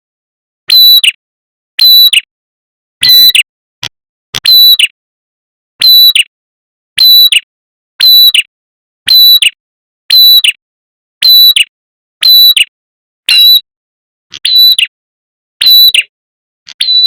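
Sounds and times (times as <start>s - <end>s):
sharp bird chirping call: 4.4s - 4.9s, 13.3s - 13.6s, 14.4s - 14.9s, 16.7s - 17.0s.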